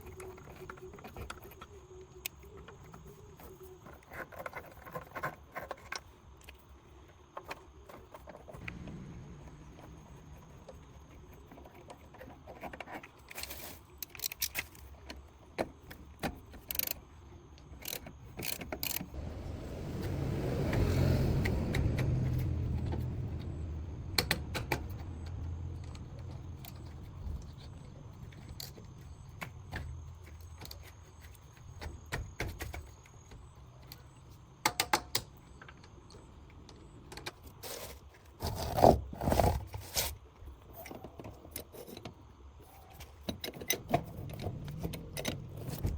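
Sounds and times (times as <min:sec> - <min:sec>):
low rumble: 0:19.1 - 0:27.5.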